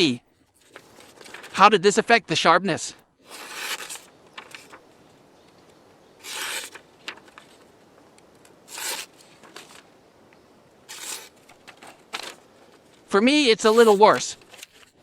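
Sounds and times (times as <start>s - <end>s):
knife slicing through paper: 3.2s - 4.8s, 6.2s - 6.8s, 8.7s - 9.2s, 10.9s - 11.4s, 13.6s - 14.9s.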